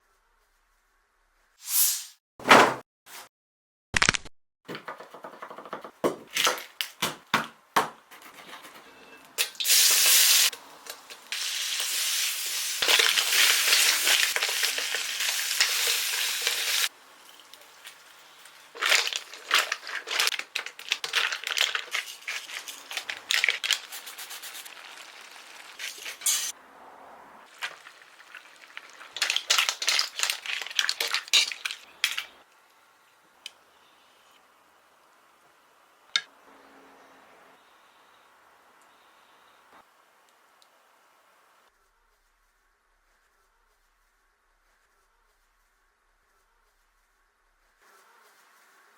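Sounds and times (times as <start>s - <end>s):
food sizzling in a pan: 9.4s - 20.3s, 23.8s - 26.6s, 27.5s - 31.8s
utensils scraping a pan: 25.8s - 26.5s.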